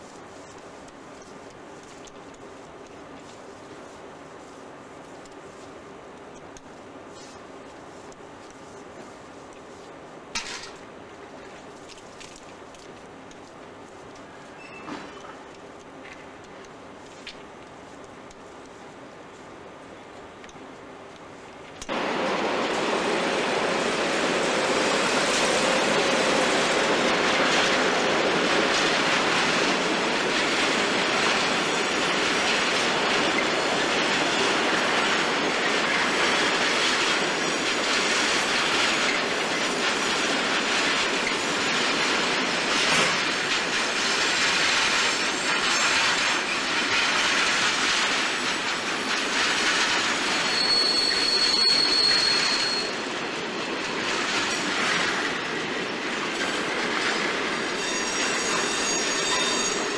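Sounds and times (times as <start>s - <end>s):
high wheel squeal: 14.5s - 15.2s, 50.3s - 53.0s, 57.7s - 59.9s
freight train rolling past: 21.4s - 59.9s.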